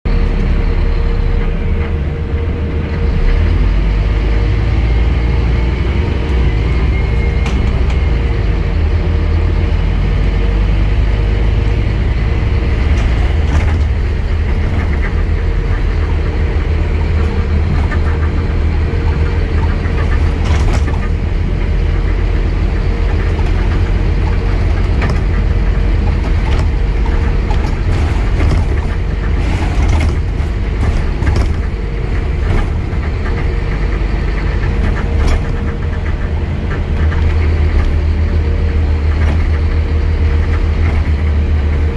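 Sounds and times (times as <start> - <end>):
bus diesel engine droning: 0.0 - 41.9
clicks and rattles: 6.2 - 41.9.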